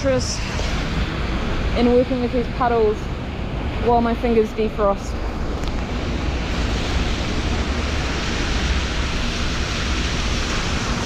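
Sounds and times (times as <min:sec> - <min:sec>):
traffic: 0:00.0 - 0:11.0
rain hissing on wet street: 0:03.8 - 0:11.0.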